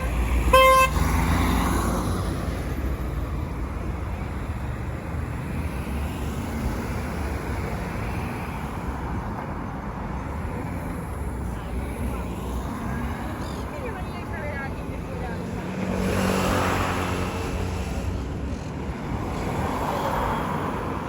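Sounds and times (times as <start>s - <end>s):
road traffic rumble and hiss: 0.0s - 21.0s
vehicle passing: 12.2s - 18.2s.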